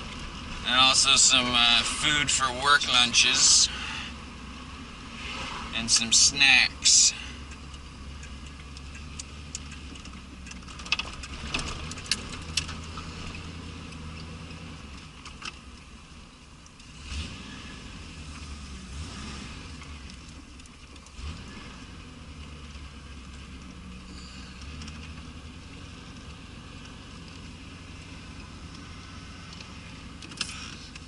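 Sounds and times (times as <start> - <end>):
car engine running: 0.0 - 31.0
sharp clicks: 7.4 - 13.0.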